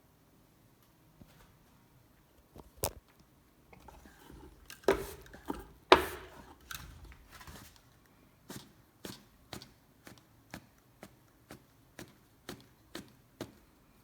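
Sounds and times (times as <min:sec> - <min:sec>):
knocks and clunks at wood stove: 0:03.8 - 0:07.2.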